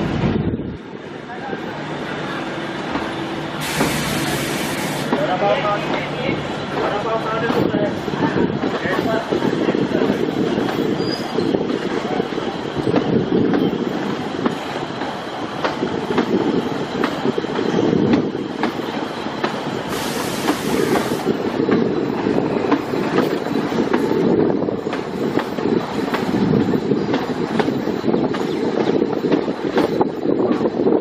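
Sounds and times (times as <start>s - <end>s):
train coach rumble and rattle: 0.0s - 31.0s
brief hiss: 3.6s - 5.1s.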